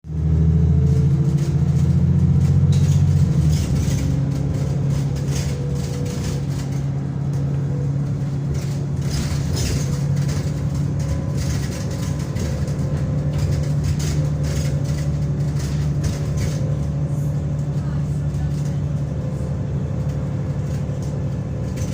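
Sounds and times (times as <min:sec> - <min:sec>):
bus diesel engine droning: 0:00.0 - 0:21.9.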